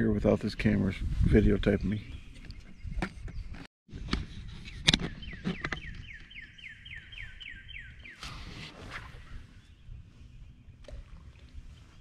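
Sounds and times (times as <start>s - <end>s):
bird whistling song: 5.0s - 8.4s.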